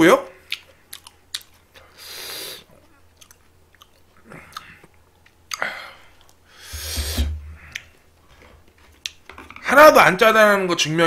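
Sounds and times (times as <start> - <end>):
chewing and mouth sounds: 0.4 - 2.0, 2.6 - 6.4.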